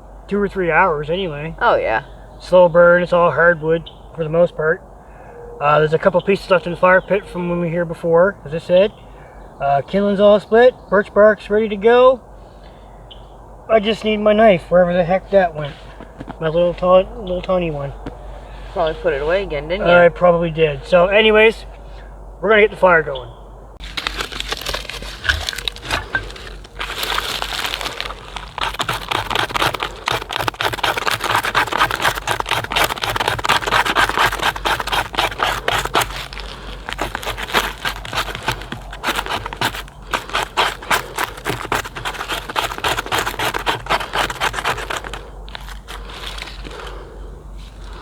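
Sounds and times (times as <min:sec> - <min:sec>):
campfire crackling: 0:23.8 - 0:47.1.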